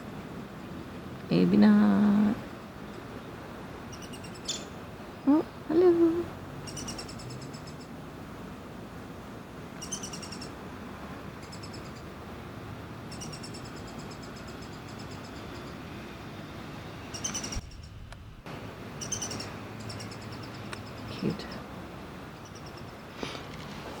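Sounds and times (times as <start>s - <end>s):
woodpecker fledgling calling: 3.8s - 4.8s, 6.6s - 8.0s, 9.8s - 10.6s, 11.4s - 12.1s, 13.1s - 15.8s, 17.1s - 18.2s, 19.0s - 21.7s, 22.3s - 23.2s.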